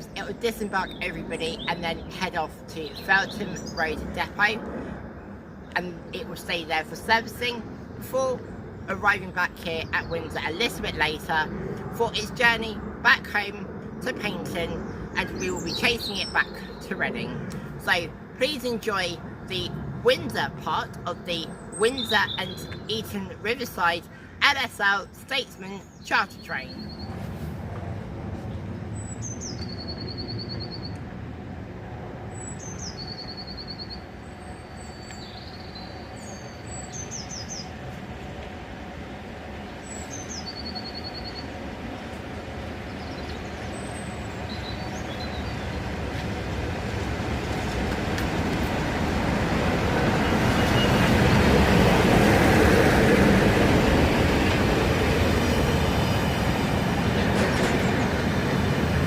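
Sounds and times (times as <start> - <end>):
birds chirping: 0.0 - 27.3, 28.4 - 31.1, 32.2 - 37.9, 38.7 - 59.0
diesel locomotive rumble: 26.6 - 59.0.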